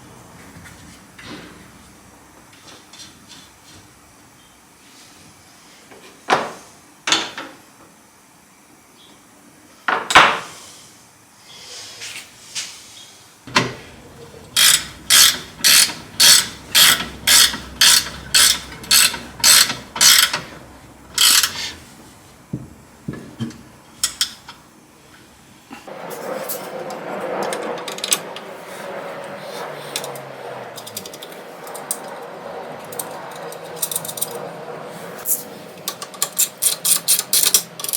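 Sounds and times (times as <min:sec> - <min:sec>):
hand tool strokes: 0:14.6 - 0:20.5, 0:21.2 - 0:21.8.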